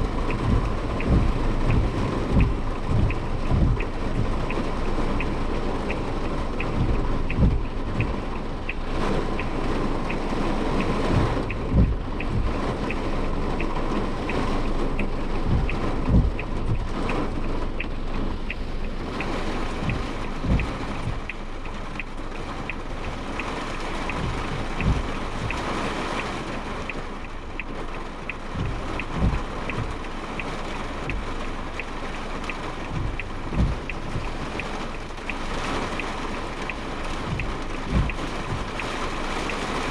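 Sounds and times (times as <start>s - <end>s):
low thumps: 0.0s - 21.5s, 32.9s - 34.4s, 37.2s - 38.7s
heavy rain drumming on car: 0.0s - 39.9s
road and tyre noise: 0.0s - 39.9s
faint even tick: 0.2s - 26.3s, 26.9s - 39.9s.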